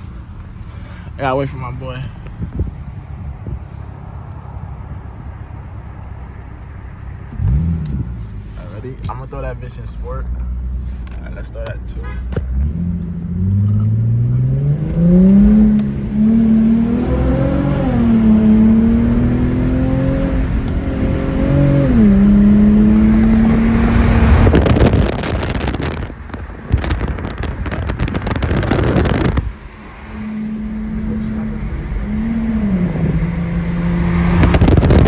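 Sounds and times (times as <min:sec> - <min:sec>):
car engine accelerating: 0:00.0 - 0:35.0
loud rushing noise: 0:15.1 - 0:35.0.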